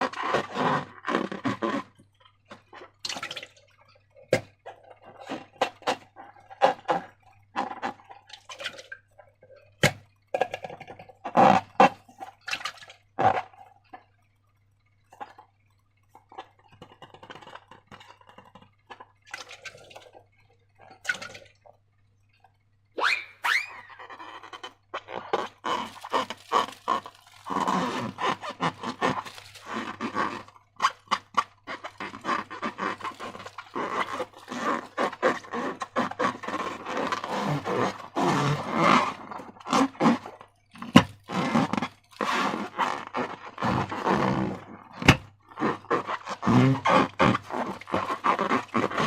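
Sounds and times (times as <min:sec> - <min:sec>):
slime squelching by hand: 0:23.0 - 0:49.0.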